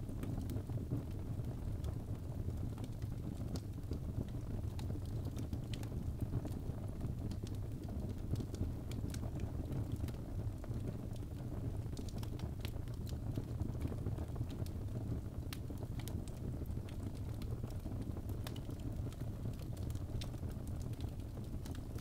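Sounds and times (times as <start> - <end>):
fire crackling and popping: 0.0 - 22.0
fire rumbling in fireplace: 0.0 - 22.0.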